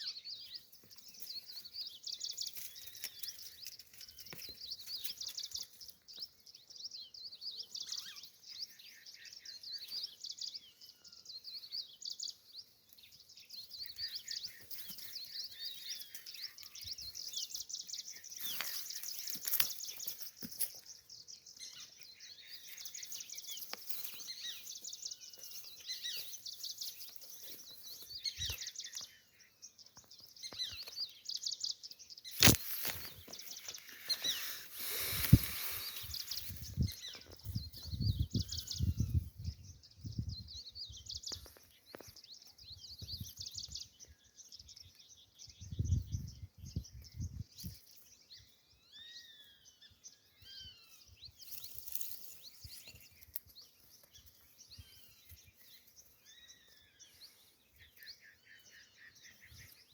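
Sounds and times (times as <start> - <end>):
birds chirping and singing: 0.0 - 59.9.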